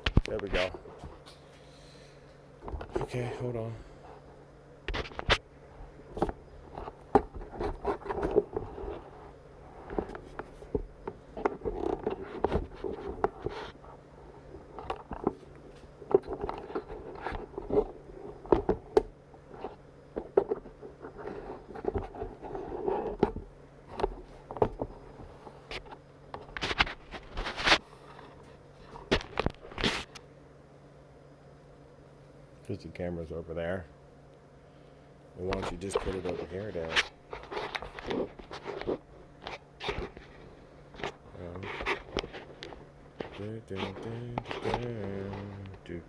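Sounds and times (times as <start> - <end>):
faint hum: 0.0 - 46.0
hands handling hard parts: 6.0 - 30.1, 35.4 - 46.0.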